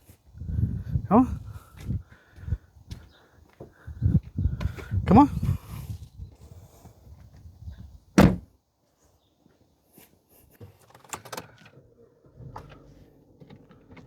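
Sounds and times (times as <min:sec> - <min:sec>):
car door slamming: 0:08.2 - 0:08.5.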